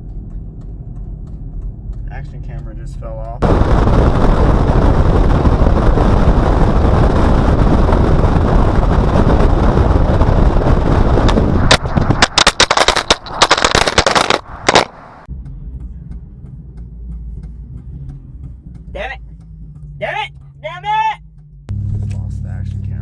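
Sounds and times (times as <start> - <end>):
wind and road roar: 0.0 - 23.0
camera clattering on pavement: 11.2 - 15.3.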